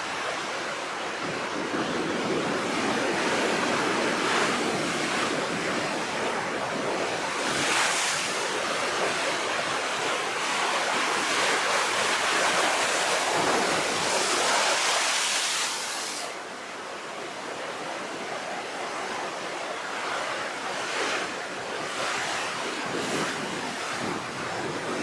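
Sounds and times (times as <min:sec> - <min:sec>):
rough sea waves breaking: 0:00.0 - 0:25.0.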